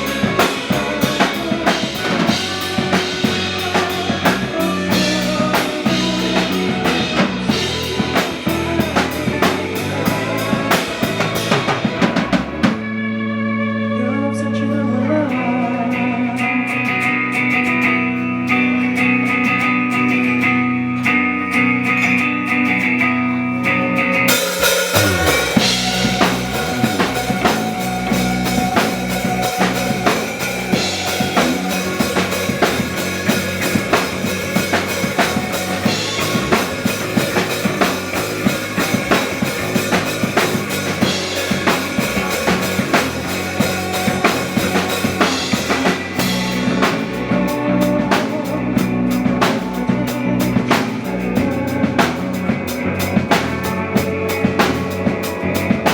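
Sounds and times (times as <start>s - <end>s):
drum kit: 0.0s - 12.9s, 24.1s - 55.9s
guitars and bass playing: 0.0s - 55.9s.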